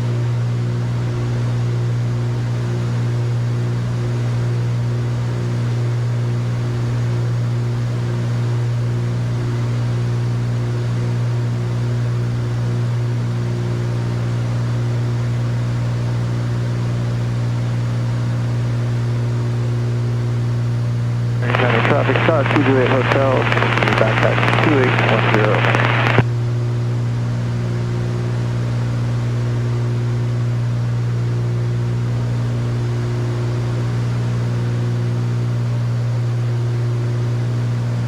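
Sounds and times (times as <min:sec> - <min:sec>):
airplane engines droning: 0:21.4 - 0:26.2.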